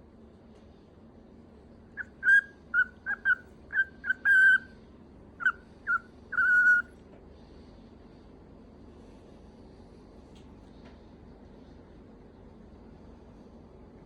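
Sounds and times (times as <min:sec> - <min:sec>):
cockatiel whistling: 0:02.0 - 0:04.7, 0:05.4 - 0:06.9.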